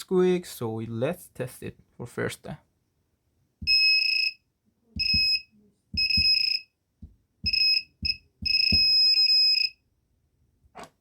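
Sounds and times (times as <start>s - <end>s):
buzzer beeping: 3.7s - 4.4s, 5.0s - 5.4s, 6.0s - 6.6s, 7.5s - 9.7s.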